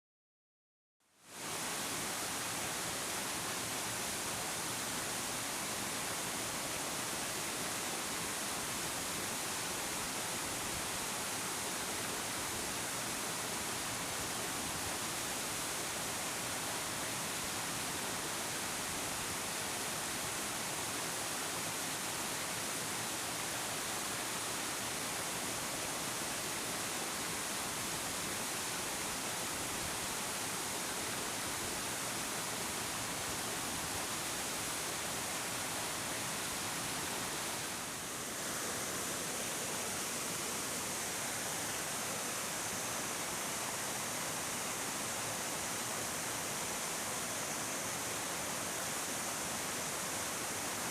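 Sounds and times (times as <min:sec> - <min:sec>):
waterfall rushing: 0:01.4 - 0:50.9.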